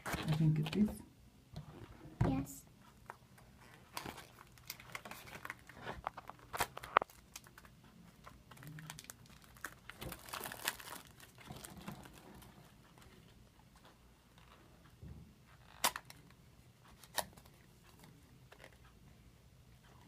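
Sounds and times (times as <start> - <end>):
packaging crackling and rustling: 3.6 - 13.1.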